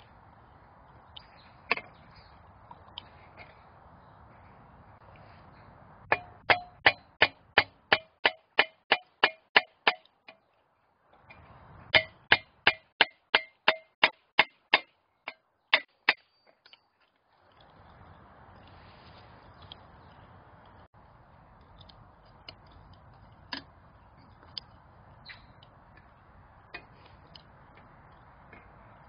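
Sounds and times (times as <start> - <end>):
hammer striking steel: 6.1 - 10.1, 11.9 - 16.2.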